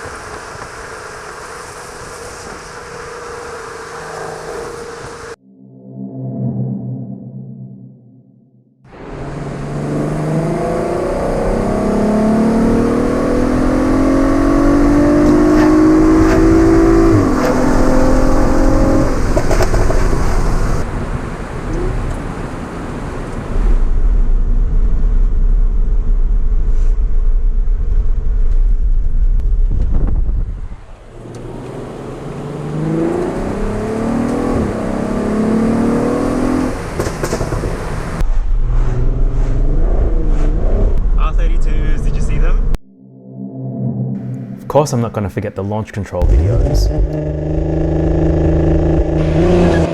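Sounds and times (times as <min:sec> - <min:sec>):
car engine accelerating with upshifts: 0:00.0 - 0:05.4, 0:08.9 - 0:20.9, 0:29.4 - 0:41.0, 0:46.2 - 0:49.9.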